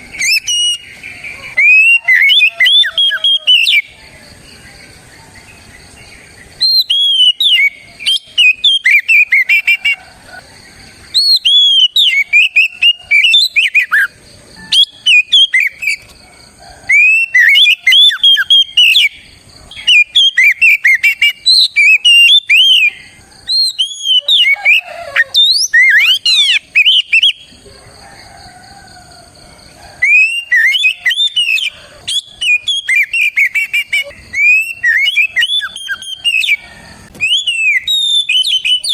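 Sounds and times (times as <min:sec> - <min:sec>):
bird singing whistled phrases: 0:00.2 - 0:00.9, 0:01.6 - 0:04.0, 0:06.6 - 0:10.0, 0:11.1 - 0:16.0, 0:16.9 - 0:27.4, 0:30.0 - 0:36.6, 0:37.2 - 0:38.9.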